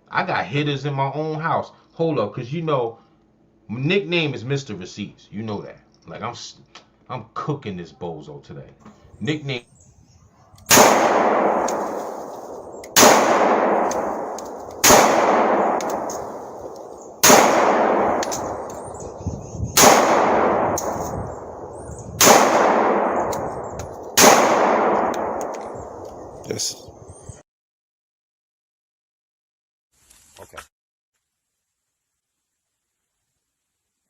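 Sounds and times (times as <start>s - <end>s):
gunshots with echoing tail: 10.7s - 26.6s.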